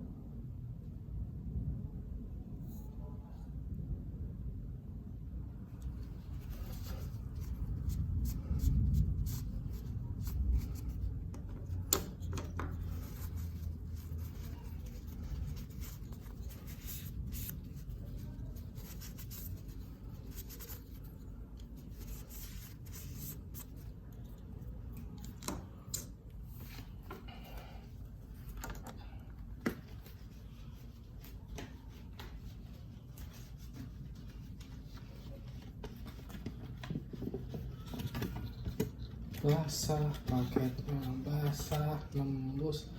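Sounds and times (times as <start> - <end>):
steady low hum: 0.0 - 42.9
packaging rubbing and scratching: 6.0 - 24.2.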